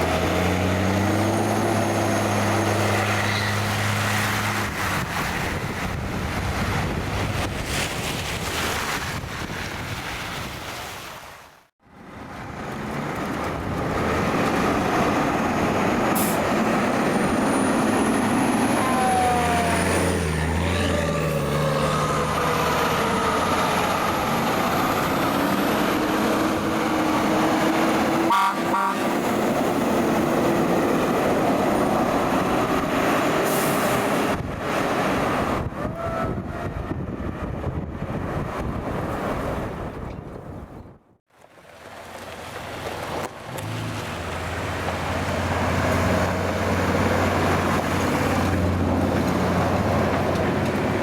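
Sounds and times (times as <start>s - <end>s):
fire truck engine and road noise: 0.0s - 11.0s, 11.6s - 51.0s
siren gliding up and down: 18.6s - 24.9s
short choppy horn blast: 28.2s - 29.1s.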